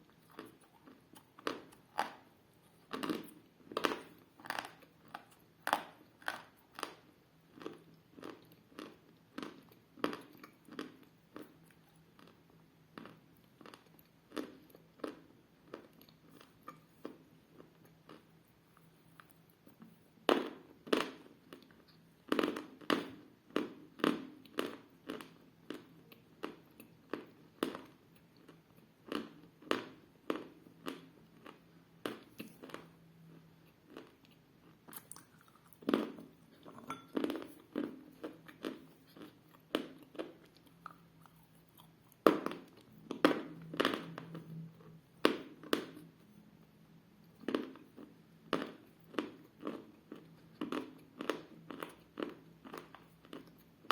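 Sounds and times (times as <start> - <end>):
chalk being chewed with crunches: 0.0 - 12.4, 32.2 - 42.9.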